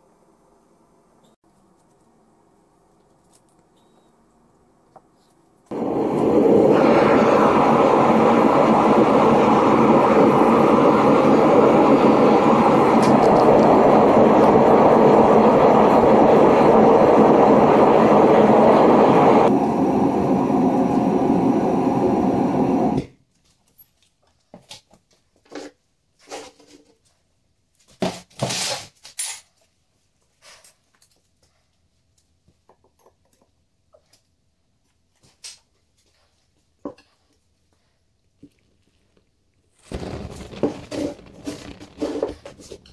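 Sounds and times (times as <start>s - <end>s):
gas furnace burner roaring: 5.7s - 23.1s, 39.8s - 42.9s.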